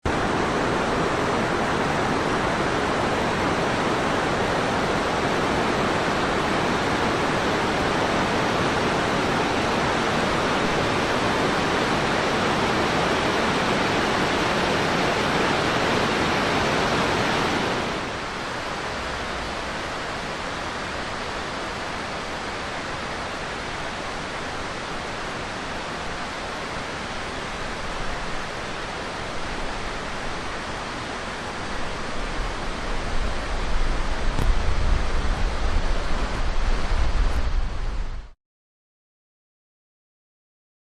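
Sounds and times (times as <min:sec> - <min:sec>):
fast-flowing mountain water: 0:00.1 - 0:38.1.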